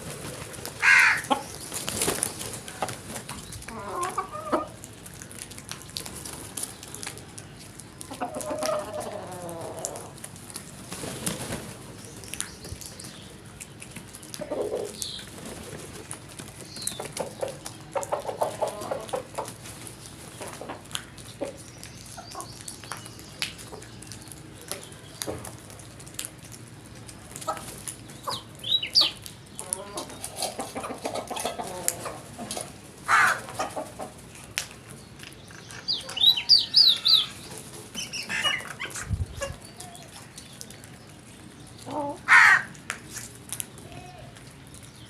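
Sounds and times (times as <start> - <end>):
birds calling harshly: 0.8 - 4.8, 33.1 - 34.0, 35.4 - 40.8, 41.7 - 44.3.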